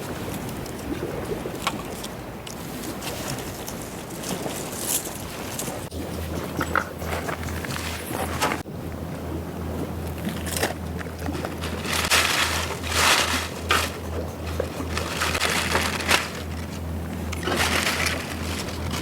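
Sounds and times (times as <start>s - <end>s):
wind rumble on microphone: 0.0s - 19.0s
small waves washing onto shore: 10.2s - 19.0s.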